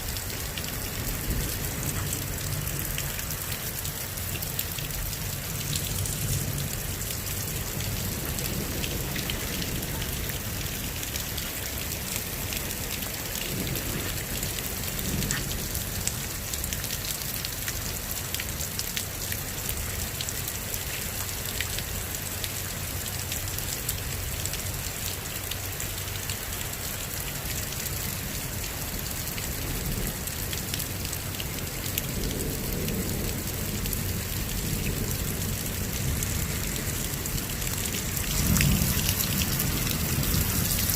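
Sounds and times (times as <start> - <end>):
heavy rain pouring: 0.0 - 40.9
low thunder rumble: 31.6 - 40.9.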